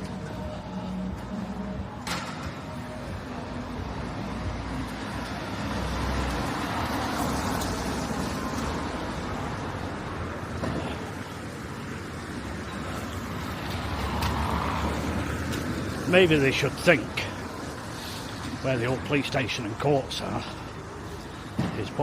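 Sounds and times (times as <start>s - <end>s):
cars driving past: 0.0s - 22.0s.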